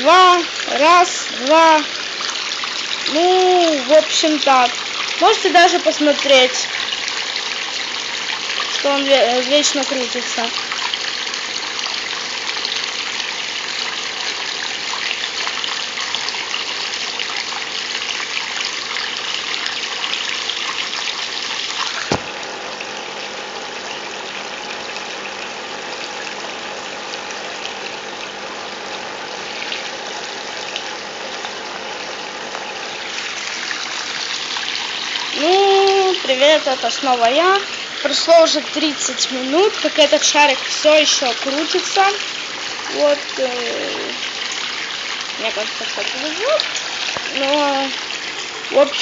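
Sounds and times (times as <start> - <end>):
tap running into bathtub: 13.8 - 22.4, 44.2 - 49.0.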